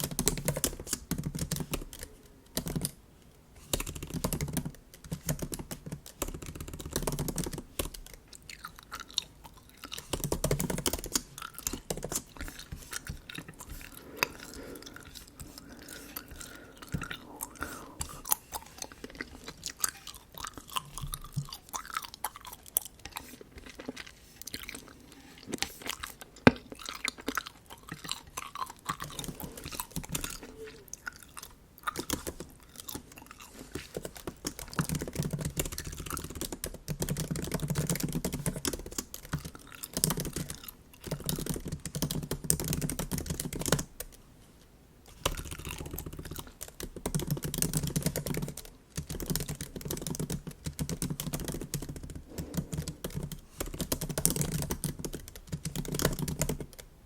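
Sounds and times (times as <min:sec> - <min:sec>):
laptop keyboard typing: 0:00.0 - 0:03.0, 0:03.7 - 0:24.0, 0:27.8 - 0:44.2, 0:45.1 - 0:56.9
gum chewing smacks: 0:08.1 - 0:10.2, 0:11.3 - 0:34.9.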